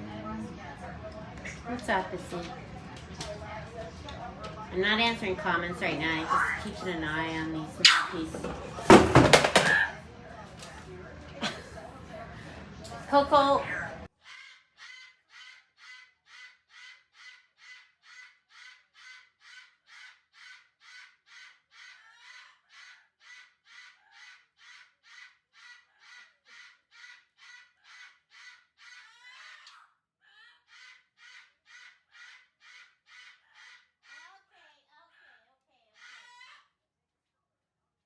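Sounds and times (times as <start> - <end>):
parrot squawking: 14.2 - 29.8, 30.7 - 34.4.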